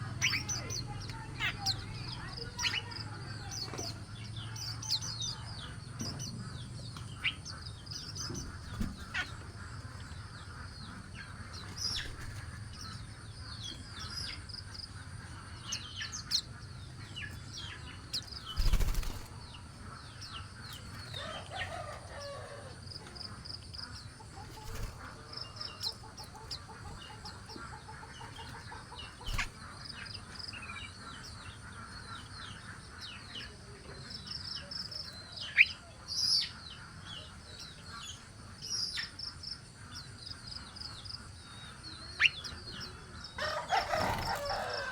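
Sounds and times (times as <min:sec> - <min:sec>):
wing flaps: 0:18.5 - 0:19.4.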